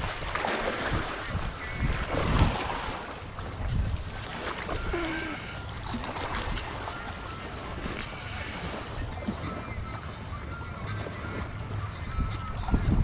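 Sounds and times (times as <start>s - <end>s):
water lapping: 0.0s - 13.0s
wind buffeting microphone: 0.0s - 13.0s.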